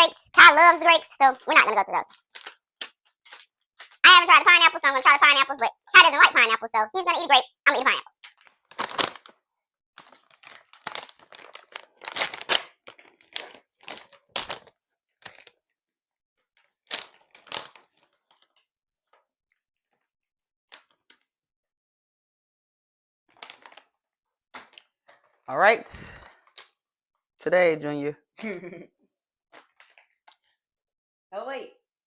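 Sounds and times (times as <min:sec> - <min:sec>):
plastic packaging crinkling: 0:02.1 - 0:02.6, 0:03.3 - 0:05.3, 0:10.0 - 0:14.7.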